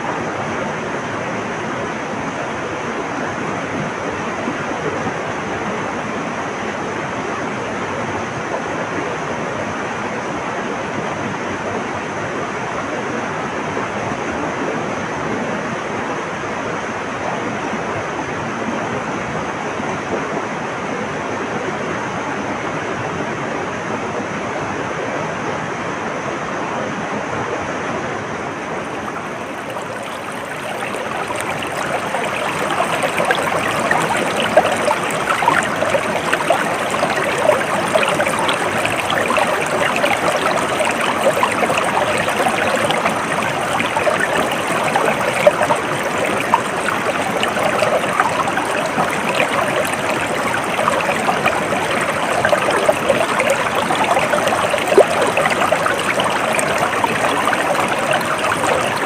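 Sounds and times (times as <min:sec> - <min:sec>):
stream water babbling over rocks: 0:28.4 - 0:59.0.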